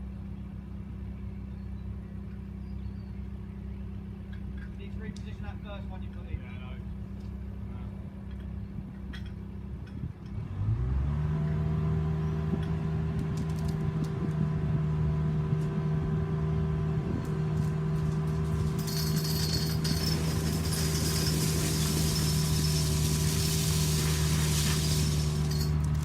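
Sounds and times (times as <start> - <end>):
heavy engine running: 10.0 - 26.0.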